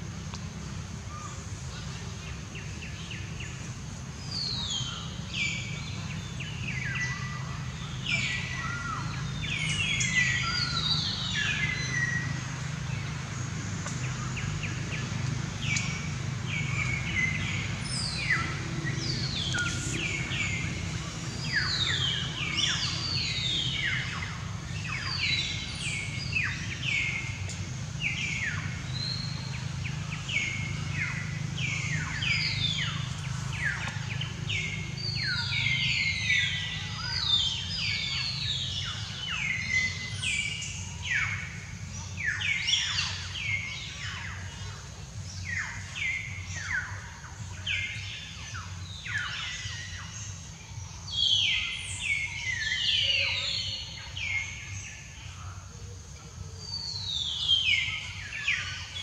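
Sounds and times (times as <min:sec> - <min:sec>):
steady low drone: 0:09.1 - 0:36.9.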